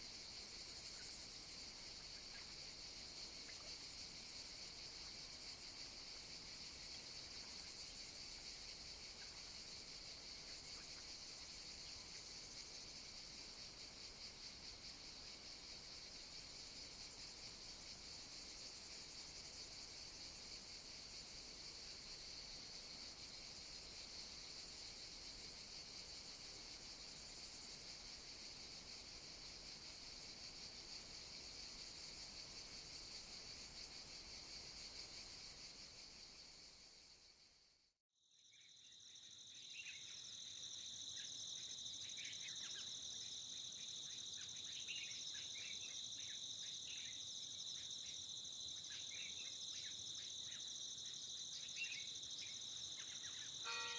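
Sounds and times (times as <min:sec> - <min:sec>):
insect chorus chirring: 0:00.0 - 0:37.7, 0:38.3 - 0:53.9
short insect chirps: 0:38.4 - 0:53.9.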